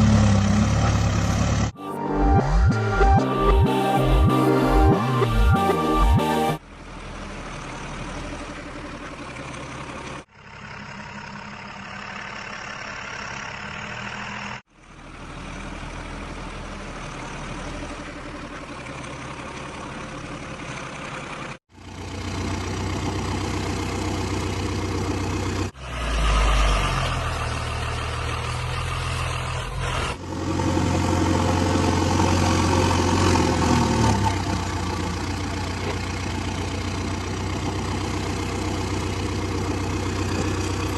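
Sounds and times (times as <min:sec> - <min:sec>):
heavy diesel engines running: 0:00.0 - 0:40.9.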